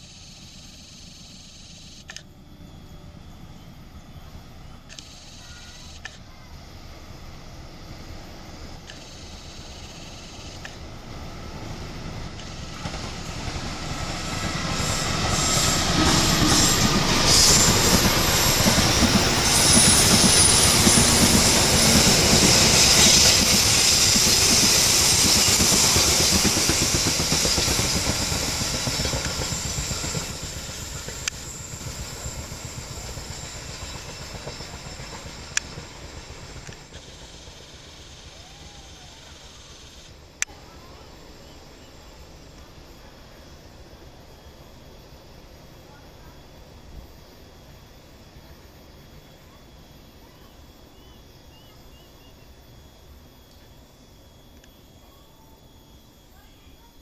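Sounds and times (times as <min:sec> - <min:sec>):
train passing: 0:02.4 - 0:57.0
wheels squealing against rails: 0:12.4 - 0:40.1.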